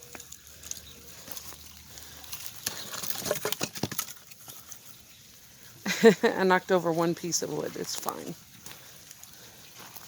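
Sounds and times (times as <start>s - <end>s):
footsteps on loose logs: 0.0s - 5.8s, 6.8s - 10.0s
wood clattering: 2.3s - 4.8s.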